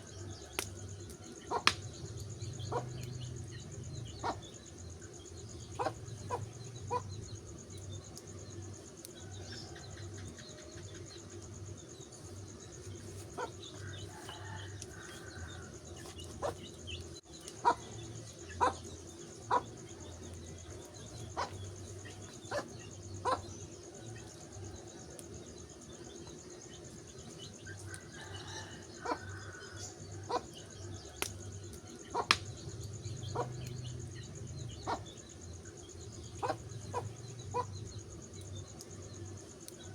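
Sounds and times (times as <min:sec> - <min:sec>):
wood fire crackling and popping: 0:00.4 - 0:06.0, 0:31.2 - 0:34.5
faint bird calls: 0:17.4 - 0:24.6.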